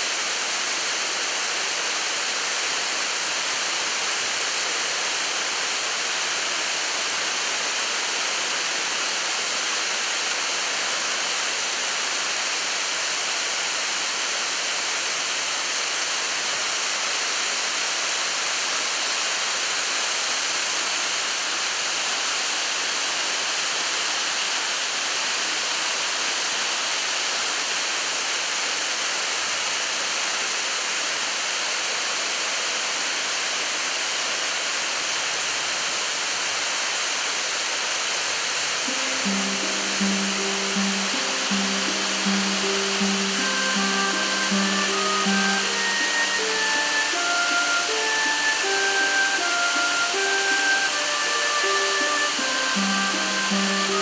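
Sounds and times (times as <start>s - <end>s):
waterfall rushing: 37.9s - 54.0s.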